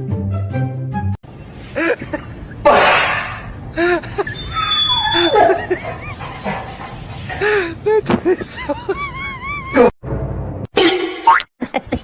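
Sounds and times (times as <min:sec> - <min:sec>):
bursts of laughter: 0:03.9 - 0:06.9.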